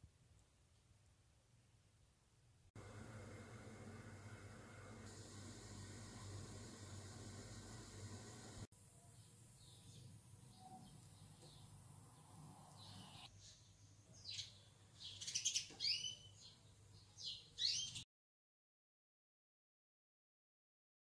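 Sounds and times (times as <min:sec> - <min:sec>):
small birds chirping: 0:09.0 - 0:18.0.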